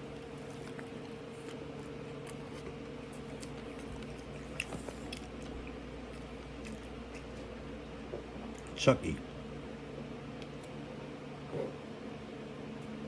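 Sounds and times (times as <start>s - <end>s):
person chewing close to microphone: 0.0s - 7.6s
steady electrical hum: 0.0s - 13.0s.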